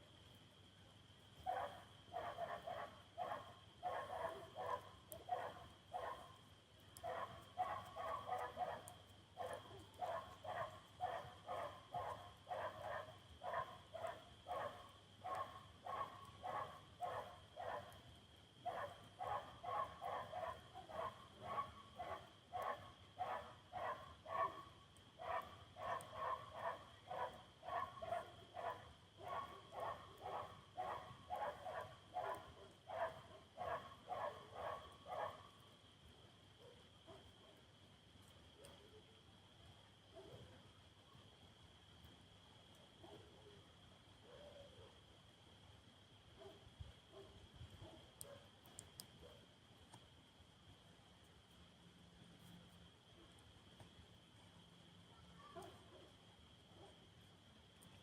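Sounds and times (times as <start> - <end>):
dog barking: 1.5 - 6.4, 7.0 - 18.0, 18.6 - 35.6, 36.6 - 37.6, 43.0 - 43.4, 44.2 - 45.0, 46.4 - 48.5, 49.2 - 49.4, 55.4 - 56.1.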